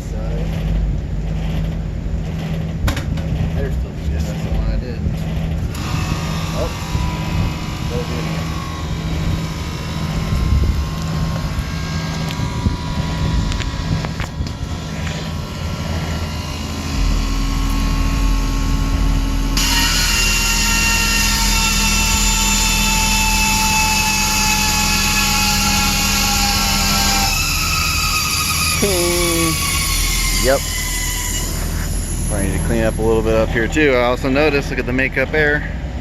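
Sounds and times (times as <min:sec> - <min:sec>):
deeper hum: 0:00.0 - 0:36.0
machinery humming: 0:00.0 - 0:36.0
loud rushing hiss with whine: 0:05.8 - 0:33.3.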